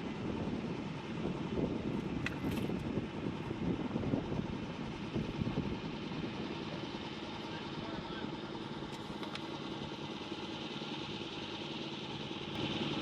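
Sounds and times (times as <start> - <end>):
wind buffeting microphone: 0.0 - 7.1
boat motor and water rumble: 0.0 - 13.0.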